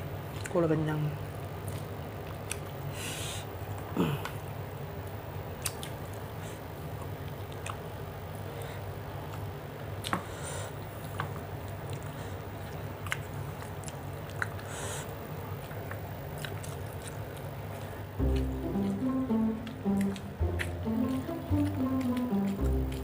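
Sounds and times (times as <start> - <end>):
steady low hum: 0.0 - 23.0
person chewing food: 1.6 - 2.9, 3.7 - 23.0
hissy breaths: 2.9 - 4.4, 10.1 - 11.0, 12.0 - 12.6, 14.6 - 15.2
music: 18.2 - 23.0.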